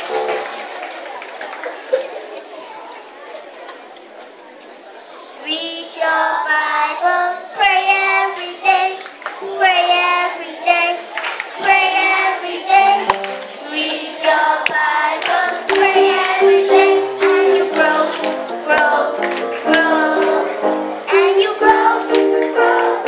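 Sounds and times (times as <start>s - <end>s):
young children singing: 5.4s - 23.0s
hand claps: 13.0s - 13.5s, 14.2s - 21.4s.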